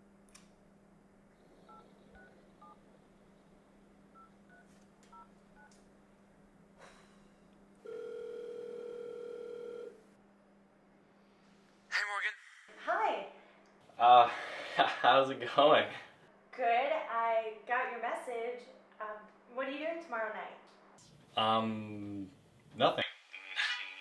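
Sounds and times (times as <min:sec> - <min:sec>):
phone ringing tone: 0:07.8 - 0:10.0.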